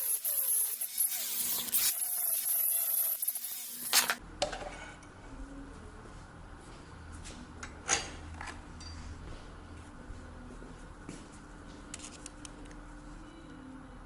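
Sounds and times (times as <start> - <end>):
metal clinks and knocks: 7.9 - 9.1.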